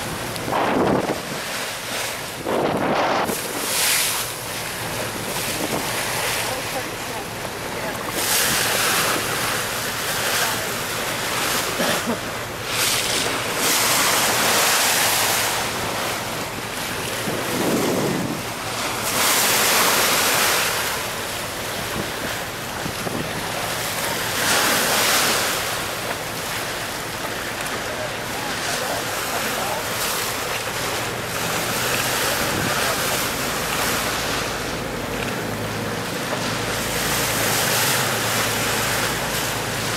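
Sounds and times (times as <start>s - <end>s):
sea water rushing along boat: 0.0s - 39.9s
wind buffeting microphone: 2.3s - 3.7s, 15.8s - 19.0s, 21.8s - 23.8s.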